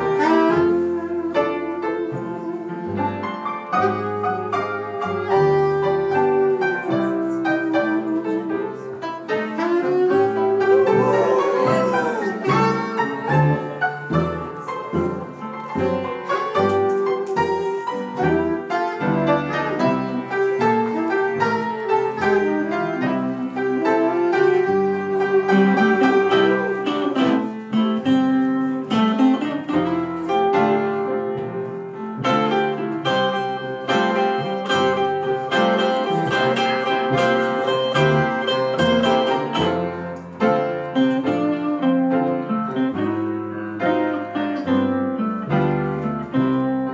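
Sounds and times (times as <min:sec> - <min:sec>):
blues band playing: 0:00.0 - 0:46.9
guitar: 0:00.0 - 0:46.9
bass notes: 0:10.2 - 0:17.6.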